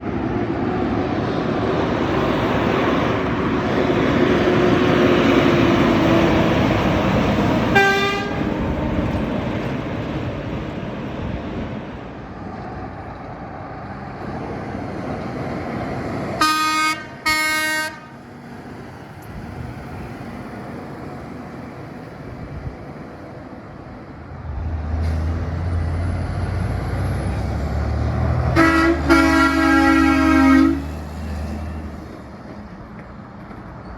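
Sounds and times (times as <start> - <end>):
heavy road traffic: 0.0 - 33.9
truck horns honking: 7.6 - 8.8, 16.4 - 18.4, 28.4 - 31.0.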